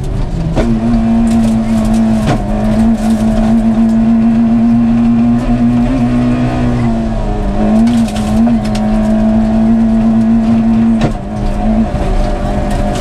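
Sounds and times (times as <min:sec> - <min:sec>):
rally car engine at high revs: 0:00.0 - 0:13.0.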